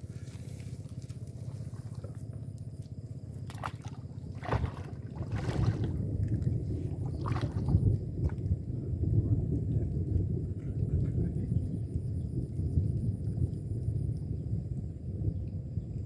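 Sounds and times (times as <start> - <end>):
water sloshing: 0.0 - 8.6
low rumbling water: 0.0 - 16.0
knocks or splashes: 3.5 - 8.5.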